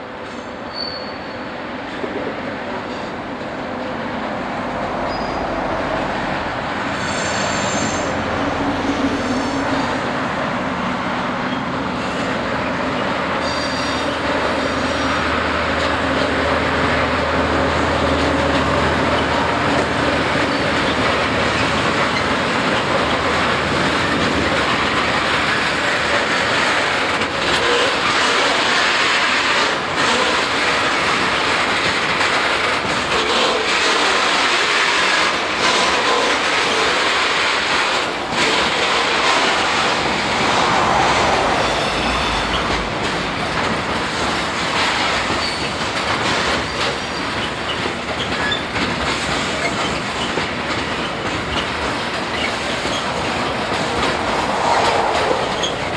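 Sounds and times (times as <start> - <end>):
railway wagons rolling: 0.0 - 55.9
high wheel squeals: 0.6 - 1.6, 5.0 - 5.8, 6.8 - 10.3, 11.4 - 15.9, 17.8 - 24.0, 35.9 - 55.9.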